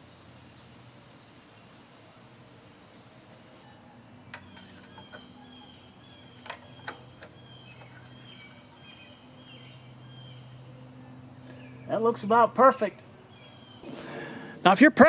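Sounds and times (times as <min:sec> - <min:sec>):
small birds chirping: 0:03.5 - 0:14.7
faint handling clicks and taps: 0:04.3 - 0:05.3, 0:06.4 - 0:08.4.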